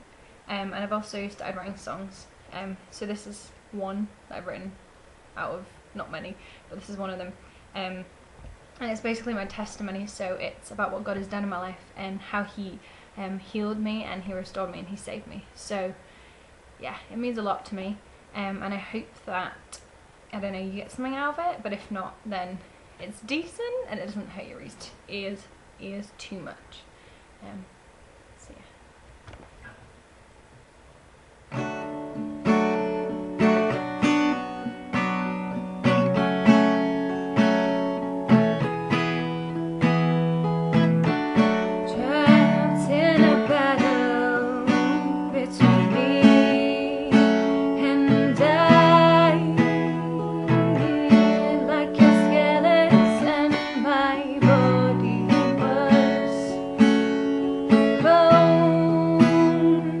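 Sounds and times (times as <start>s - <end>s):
acoustic guitar strumming: 31.5s - 60.0s
woman singing: 41.7s - 60.0s.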